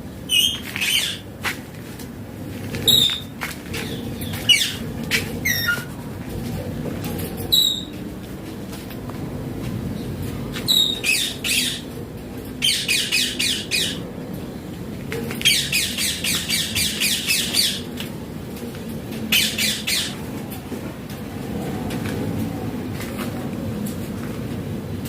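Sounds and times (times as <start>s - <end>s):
parakeet screeching: 0.3s - 1.2s, 12.6s - 14.0s, 19.3s - 20.2s.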